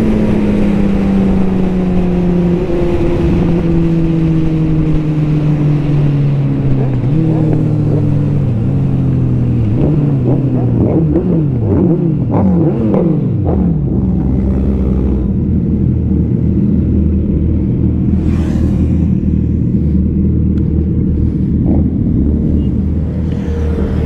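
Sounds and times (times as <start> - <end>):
low engine drone: 0.0 - 24.0
rush of noise: 0.0 - 24.0.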